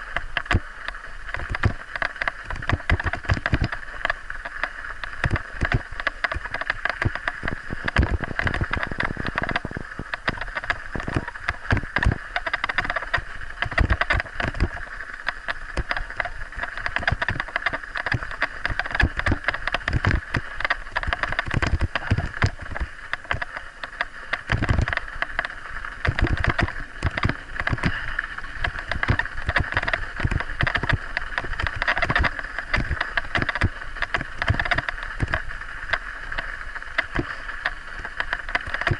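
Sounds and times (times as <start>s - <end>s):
bike rattling and knocking: 0.0s - 0.7s, 1.3s - 38.9s.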